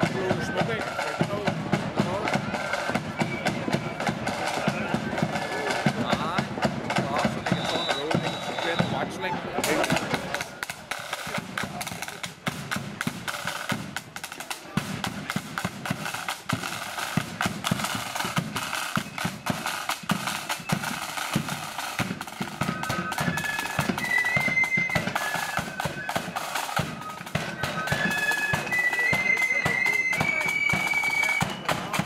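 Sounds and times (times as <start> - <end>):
flute melody: 0.0 - 12.2, 13.2 - 32.0
bass drum beat: 0.0 - 23.2
snare drums rolling: 0.0 - 32.0.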